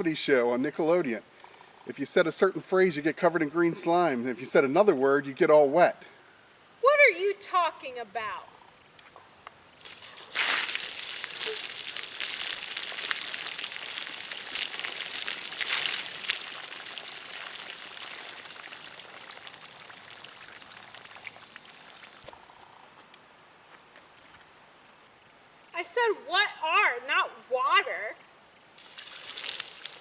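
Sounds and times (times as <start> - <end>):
crickets chirping: 0.0 - 30.0
water splashing over person: 9.8 - 22.3, 28.8 - 30.0.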